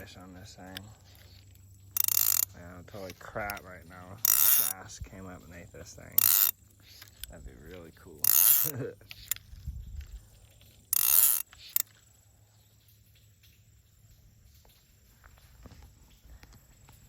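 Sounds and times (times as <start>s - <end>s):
reel click: 0.0s - 10.2s, 10.9s - 12.0s
fishing reel ratchet buzzing: 0.0s - 12.2s.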